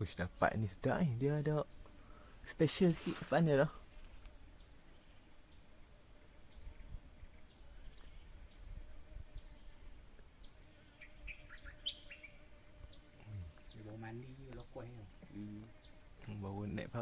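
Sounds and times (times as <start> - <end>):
high-pitched insect drone: 6.3 - 17.0
bird notes: 10.4 - 14.8.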